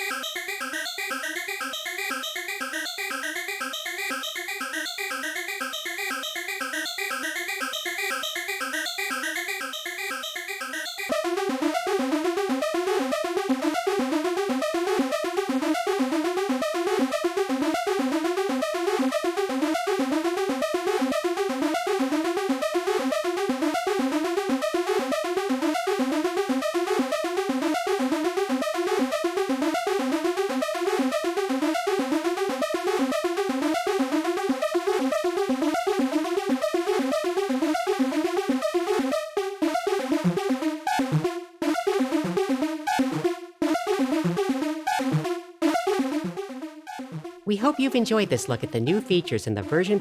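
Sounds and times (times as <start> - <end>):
synthesizer arpeggio: 0.0 - 11.2, 47.0 - 50.0.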